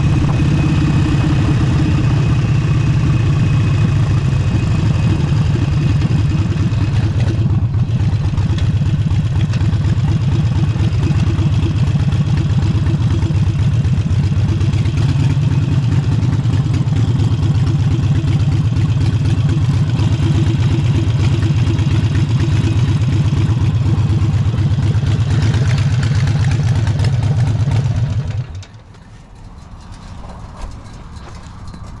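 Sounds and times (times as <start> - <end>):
motorcycle engine rumbling: 0.0 - 32.0.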